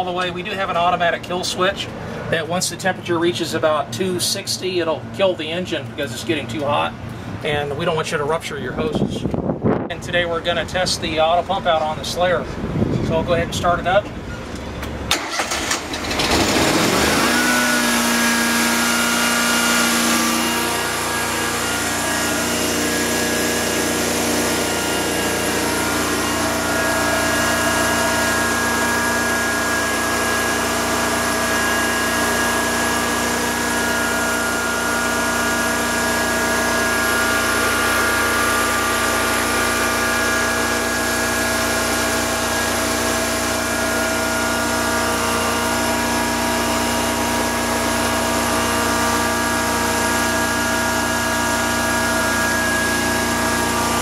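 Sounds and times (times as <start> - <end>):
machine engine cranking and running: 14.5 - 54.0.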